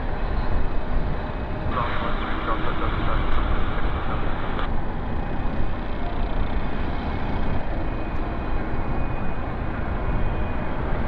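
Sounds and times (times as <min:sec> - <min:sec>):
jet engines rumbling: 0:00.0 - 0:05.7.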